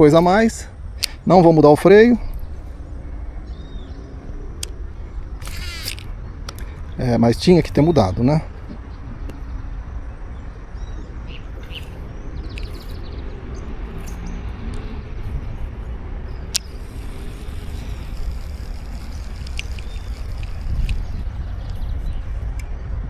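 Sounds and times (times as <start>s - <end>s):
wind buffeting microphone: 0.0s - 23.0s
sharp click: 1.0s - 2.5s, 4.6s - 9.5s, 16.3s - 22.7s
faint bird chirps: 3.4s - 4.2s.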